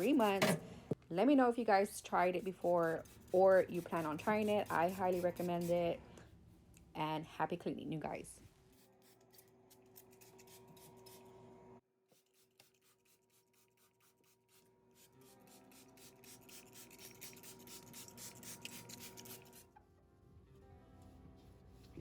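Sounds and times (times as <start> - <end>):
rapid scrubbing strokes on a surface: 2.2 - 6.0
soft background music: 14.5 - 22.0.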